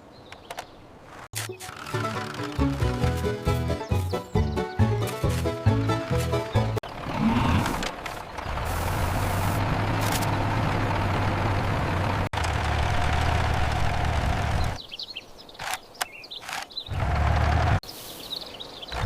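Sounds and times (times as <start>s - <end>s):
faint clicks and chirps: 0.2s - 0.8s, 15.5s - 16.9s
vehicle engine running: 5.1s - 14.8s, 16.9s - 17.8s.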